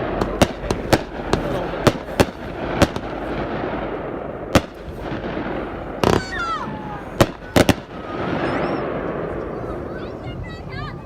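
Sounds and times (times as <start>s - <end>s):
continuous din: 0.0s - 11.0s
fireworks cracking and banging: 0.0s - 11.0s.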